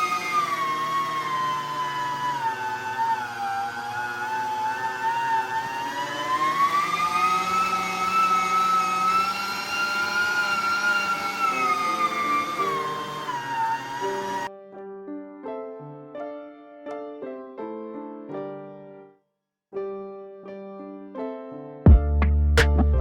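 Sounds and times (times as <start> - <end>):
electric meat grinder whining: 0.0 - 14.5.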